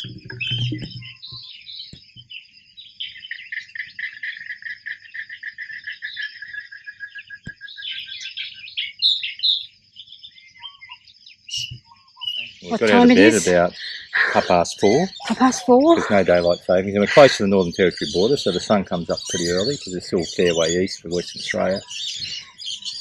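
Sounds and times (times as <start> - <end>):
birds calling: 0.0 - 23.0
steady high-pitched whine: 12.6 - 21.8.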